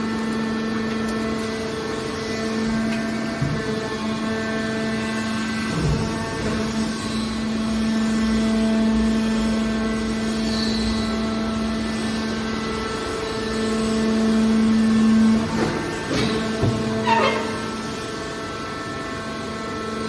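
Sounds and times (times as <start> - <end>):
hydraulic power unit humming: 0.0 - 20.0
brief squeals: 17.0 - 17.9.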